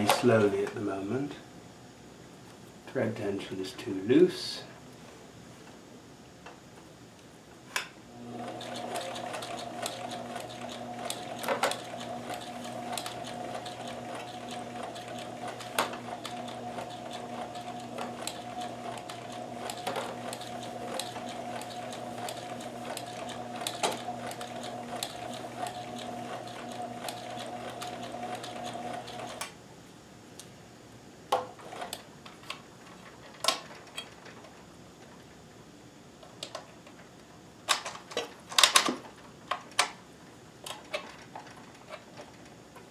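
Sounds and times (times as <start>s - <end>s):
sewing machine humming: 8.1s - 29.5s.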